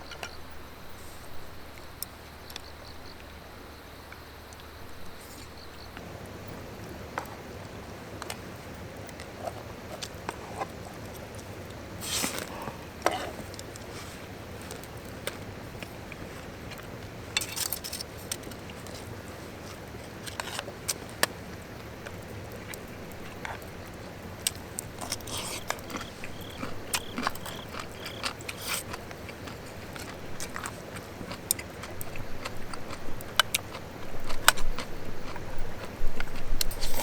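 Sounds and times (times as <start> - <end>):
chewing and biting: 9.2 - 37.0.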